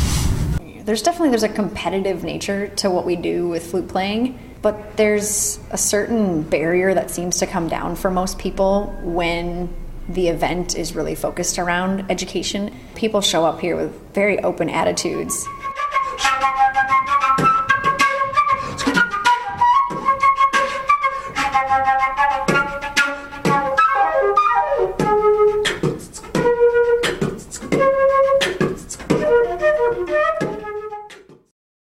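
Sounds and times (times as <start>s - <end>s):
flute melody: 15.3s - 31.5s
beatboxing: 16.1s - 21.6s, 22.2s - 31.5s.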